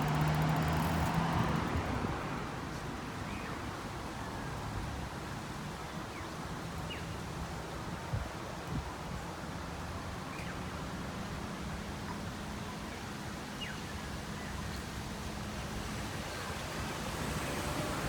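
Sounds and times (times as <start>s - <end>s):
distant traffic: 0.0s - 4.4s, 11.0s - 18.0s
wind hiss: 15.4s - 18.0s.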